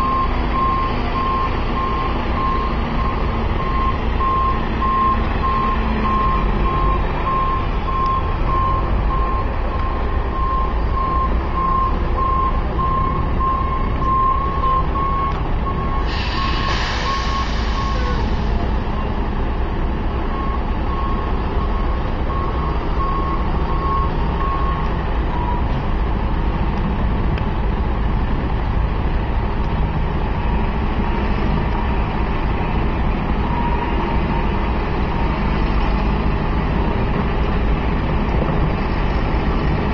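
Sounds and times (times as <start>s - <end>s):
reversing alarm beeping: 0.0s - 19.2s, 20.3s - 25.8s
diesel engine rumble: 0.0s - 39.9s
air hissing: 16.0s - 19.0s.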